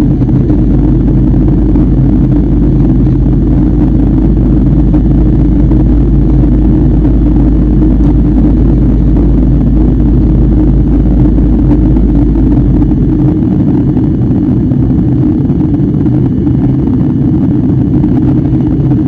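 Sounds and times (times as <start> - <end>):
airliner cabin drone: 0.0 - 19.0
low hums: 0.0 - 19.0.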